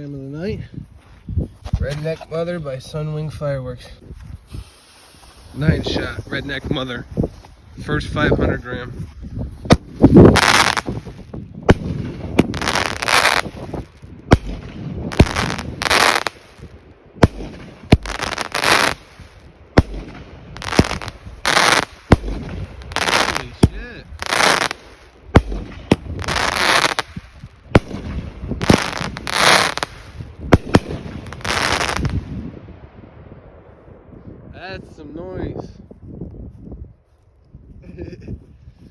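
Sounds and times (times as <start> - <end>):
firework hiss and crackle: 4.4 - 6.8, 9.7 - 32.3
firework reports: 4.5 - 7.1, 9.7 - 32.4.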